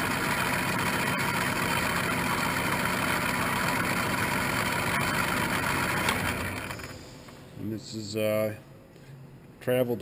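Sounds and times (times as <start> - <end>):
lathe motor whirring: 0.0 - 7.3.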